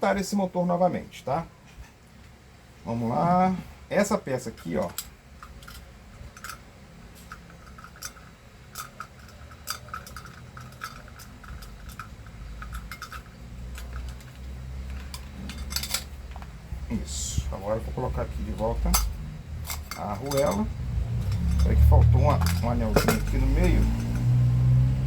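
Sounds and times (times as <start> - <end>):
small metal parts clinking: 4.4 - 16.6, 18.5 - 24.5.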